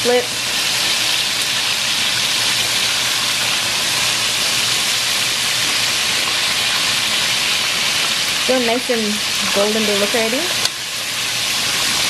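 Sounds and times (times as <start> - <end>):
chicken deep-frying in oil: 0.0 - 12.0.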